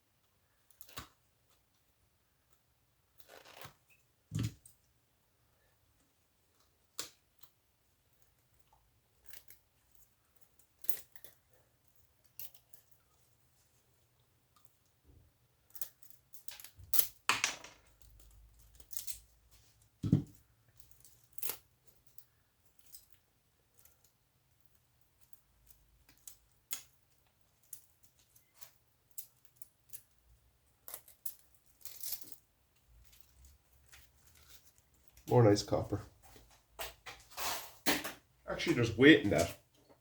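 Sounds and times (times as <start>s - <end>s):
scraping or tearing noises: 3.2s - 3.9s.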